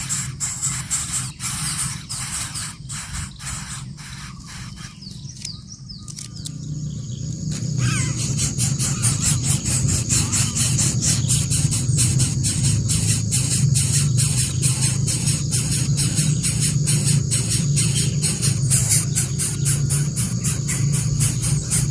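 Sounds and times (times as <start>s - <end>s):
birds chirping: 0.0s - 21.9s
sharp clicks: 5.3s - 6.6s.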